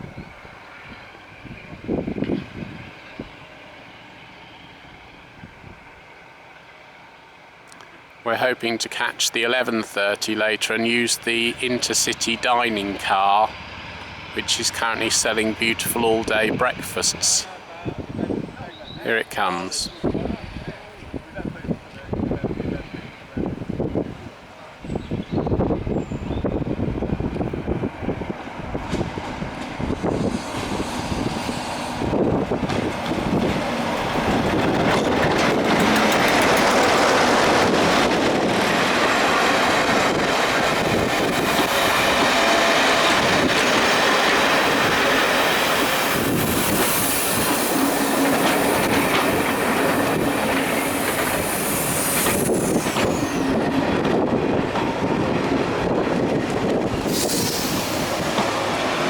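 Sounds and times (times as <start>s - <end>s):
train rumbling: 0.0s - 59.0s
wheels clicking over rail joints: 32.1s - 51.6s
high-pitched wheel squeal: 50.2s - 53.6s.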